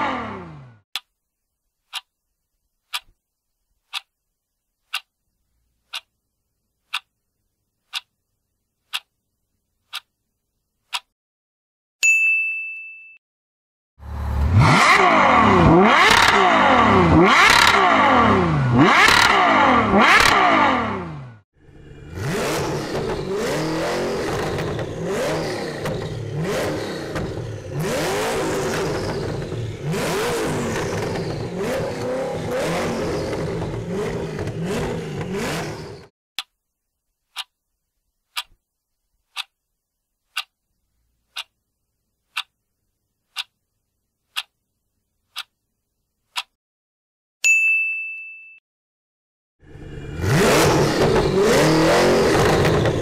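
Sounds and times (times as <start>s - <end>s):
car engine revving in blips: 0.0s - 0.8s, 14.0s - 36.1s, 49.6s - 53.0s
car engine revving up and down: 0.0s - 0.8s, 14.0s - 36.1s, 49.6s - 53.0s
countdown clock ticking: 8.9s - 9.1s, 10.9s - 11.1s, 40.3s - 40.5s, 41.3s - 41.5s, 42.3s - 42.5s, 43.3s - 43.6s, 44.3s - 44.6s, 46.4s - 46.6s.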